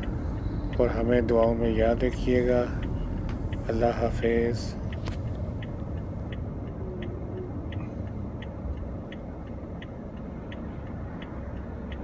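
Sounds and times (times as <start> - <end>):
car engine rumble: 0.0 - 12.0
turn signal ticking: 0.0 - 12.0.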